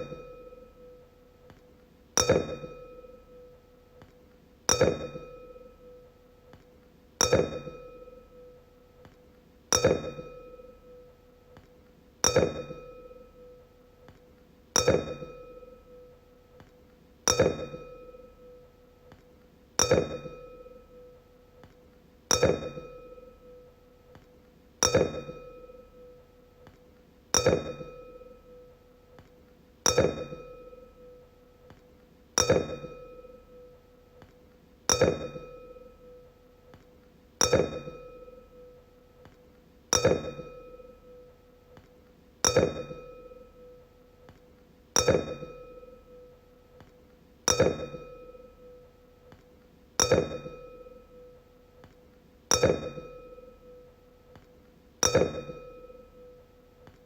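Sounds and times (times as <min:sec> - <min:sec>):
wine glass ringing when struck: 0:00.0 - 0:01.0, 0:02.2 - 0:03.4, 0:04.7 - 0:06.0, 0:07.2 - 0:08.3, 0:09.7 - 0:10.9, 0:12.2 - 0:13.5, 0:14.8 - 0:15.9, 0:27.4 - 0:28.6, 0:29.9 - 0:31.2, 0:32.4 - 0:33.7, 0:34.9 - 0:36.2, 0:37.4 - 0:38.7, 0:39.9 - 0:41.2, 0:42.4 - 0:43.8, 0:45.0 - 0:46.3, 0:47.5 - 0:48.8, 0:50.0 - 0:51.3, 0:52.5 - 0:53.8, 0:55.0 - 0:56.4.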